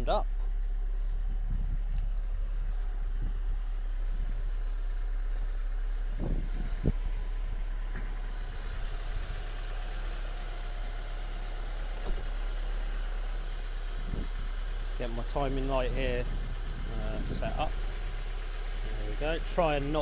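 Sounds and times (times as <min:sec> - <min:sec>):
car engine idling: 0:00.0 - 0:20.0
short engine knocks: 0:11.8 - 0:12.8.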